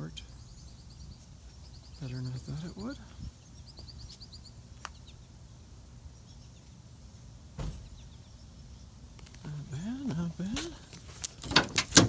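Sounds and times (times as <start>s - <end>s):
high bird chirps: 0.0s - 5.4s
steady low hum: 0.0s - 12.0s
short knock: 7.6s - 8.0s.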